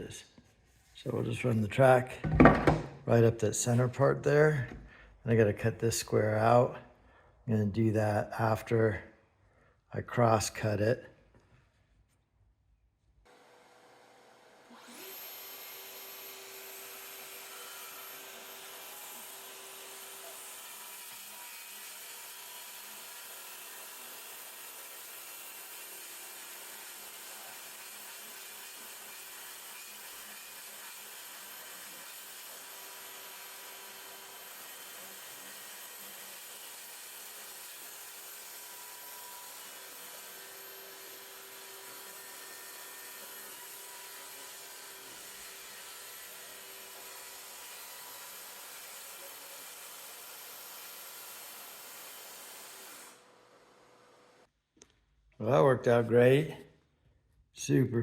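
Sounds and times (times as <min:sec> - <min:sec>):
track saw cutting wood: 0:13.3 - 0:54.0.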